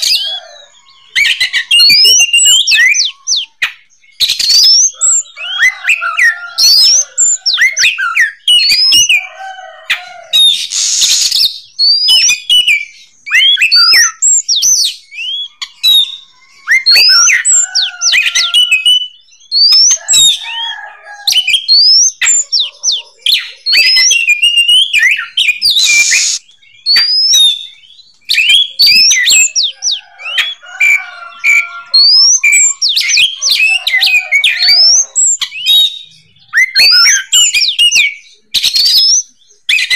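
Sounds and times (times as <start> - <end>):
bird whistled song: 0.0 - 9.3, 10.3 - 20.5, 21.2 - 39.9
harsh rasping bird notes: 10.5 - 11.6, 25.7 - 26.4.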